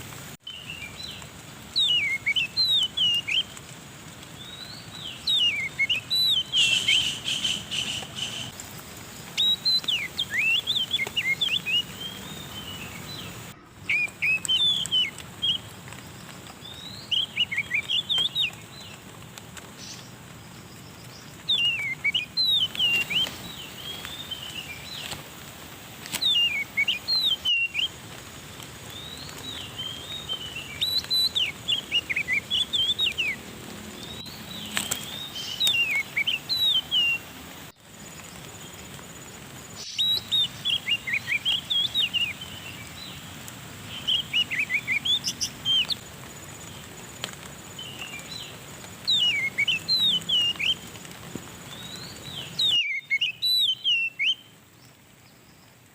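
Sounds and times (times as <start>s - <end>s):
steady background hiss: 0.0s - 55.9s
bird whistling calls: 1.7s - 3.6s, 4.4s - 8.5s, 9.3s - 15.7s, 16.6s - 18.6s, 21.5s - 25.2s, 26.2s - 27.9s, 28.9s - 33.4s, 34.0s - 37.2s, 39.8s - 42.9s, 43.9s - 46.0s, 47.8s - 50.9s, 51.7s - 54.5s.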